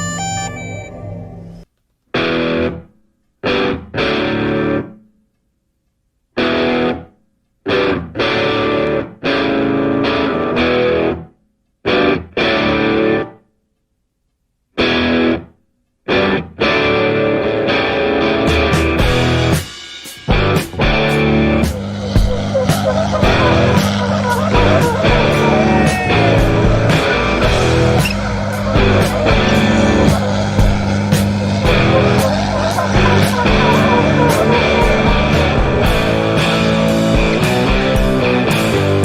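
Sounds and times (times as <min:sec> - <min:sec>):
distorted electric guitar chords: 0:03.4 - 0:04.9, 0:06.4 - 0:07.0, 0:07.7 - 0:11.2, 0:16.1 - 0:39.0.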